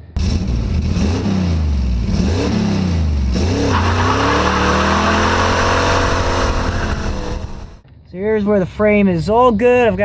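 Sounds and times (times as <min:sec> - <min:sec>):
car engine revving and accelerating: 0:00.2 - 0:07.8.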